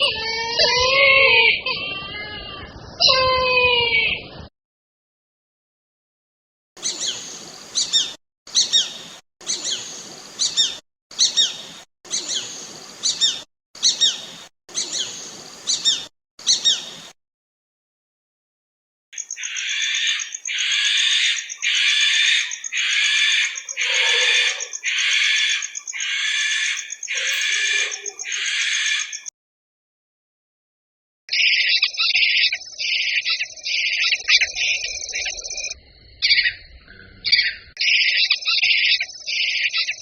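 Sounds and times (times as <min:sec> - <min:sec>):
bird of prey calling: 0:06.8 - 0:16.9, 0:19.2 - 0:29.3
bird of prey high falling calls: 0:19.4 - 0:29.0.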